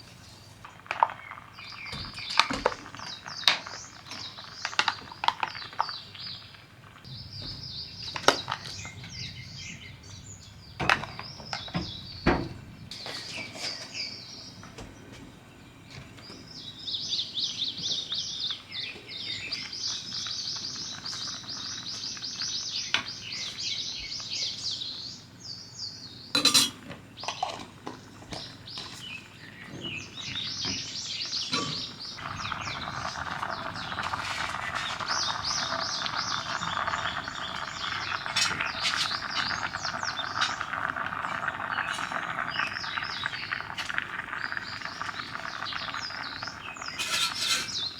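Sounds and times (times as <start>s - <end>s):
small birds chirping: 0.0s - 47.9s
dishes and utensils clinking: 26.4s - 27.7s, 46.9s - 47.9s.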